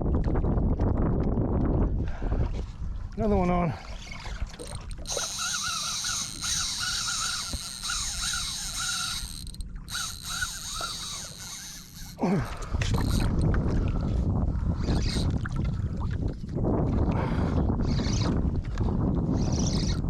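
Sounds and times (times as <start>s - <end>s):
wind buffeting microphone: 0.0s - 20.0s
fishing reel whirring: 4.6s - 13.5s, 14.8s - 15.3s, 17.8s - 18.4s, 19.2s - 20.0s.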